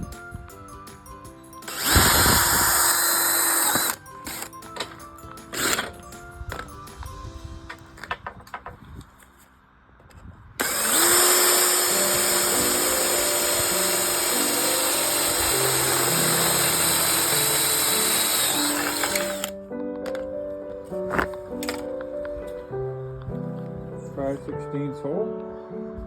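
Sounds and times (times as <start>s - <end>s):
background music: 0.0s - 8.5s, 10.6s - 26.0s
electric drill boring: 1.6s - 4.9s, 5.5s - 6.0s, 10.6s - 19.5s.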